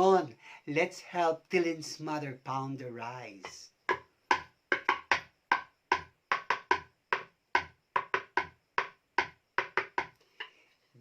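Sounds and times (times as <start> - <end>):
pestle pounding rice in mortar: 3.4 - 10.2.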